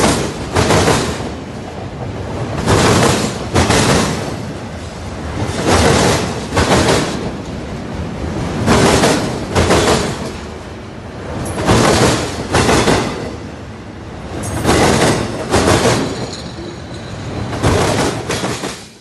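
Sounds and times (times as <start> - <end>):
train wheels knocking over rail gaps: 0.0 - 1.4, 2.5 - 4.5, 5.4 - 7.4, 8.6 - 10.4, 11.4 - 13.4, 14.4 - 16.6, 17.4 - 19.0.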